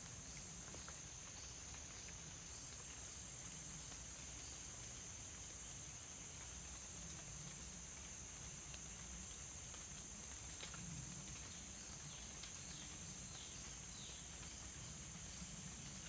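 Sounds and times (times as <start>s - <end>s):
high-pitched insect hum: 0.0s - 16.0s.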